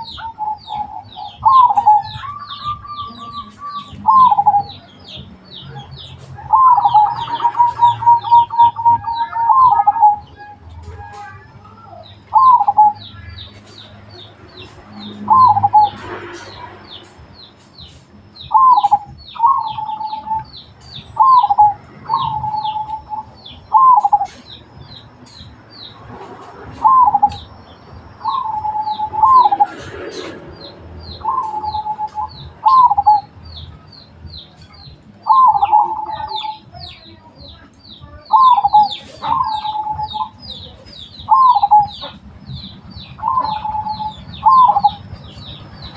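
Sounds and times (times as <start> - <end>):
dove cooing: 0.0 - 13.4, 15.0 - 16.6, 18.5 - 24.6, 26.3 - 27.5, 28.2 - 33.3, 35.2 - 36.7, 38.3 - 42.2, 43.0 - 45.9.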